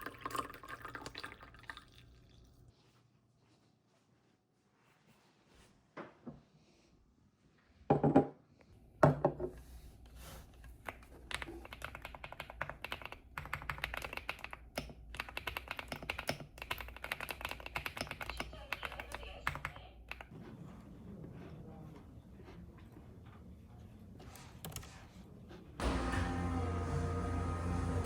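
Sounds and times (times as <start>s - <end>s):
typing on computer keyboard: 10.8s - 20.3s.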